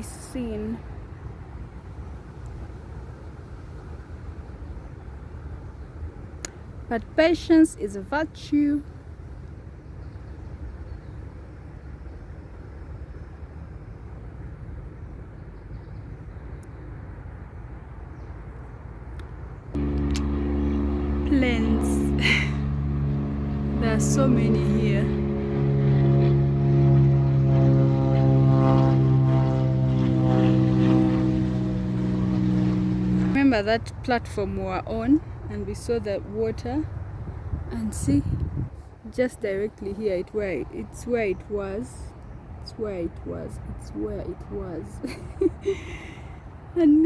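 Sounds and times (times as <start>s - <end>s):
propeller aircraft engine drone: 14.6s - 39.1s, 39.7s - 46.8s
distant motor rumble: 19.2s - 47.0s.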